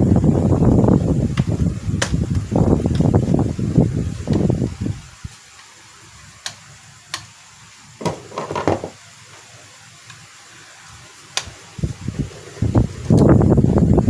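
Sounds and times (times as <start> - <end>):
low steady hiss: 0.0 - 14.0
rustling and scraping: 8.0 - 9.0.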